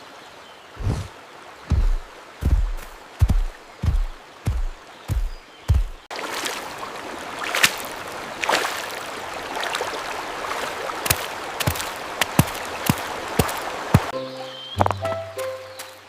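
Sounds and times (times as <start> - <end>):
deep low thump: 1.7 - 6.1
steady rushing ambience: 1.7 - 6.1.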